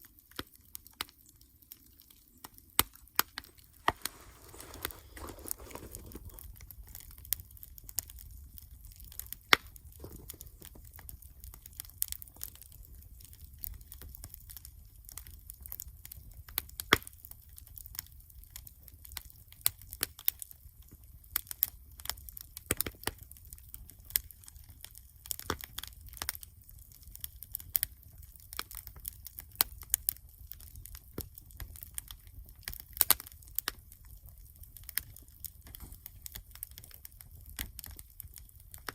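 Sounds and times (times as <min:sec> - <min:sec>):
campfire crackling: 0:00.0 - 0:38.9
fire pops and snaps: 0:00.0 - 0:38.9.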